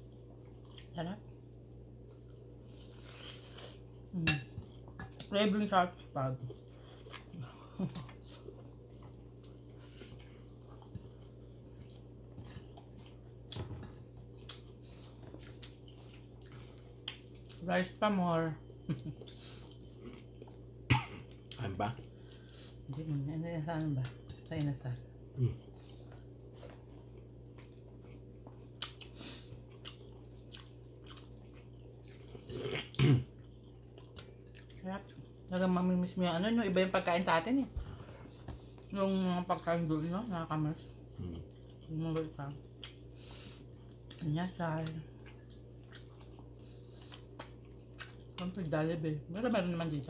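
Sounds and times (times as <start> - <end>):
soft chewing: 0.0 - 5.3, 5.9 - 17.7, 18.5 - 36.8, 37.7 - 50.0
steady low hum: 0.0 - 50.0.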